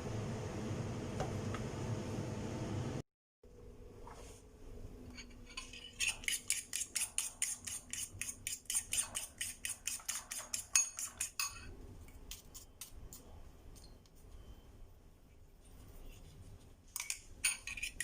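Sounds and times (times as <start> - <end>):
cooking utensil clinking against pan: 8.7 - 11.7.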